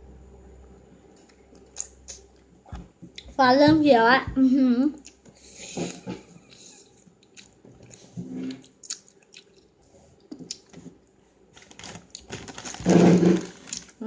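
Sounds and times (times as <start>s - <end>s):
gum chewing with wet clicks: 1.2s - 2.4s, 7.2s - 10.8s.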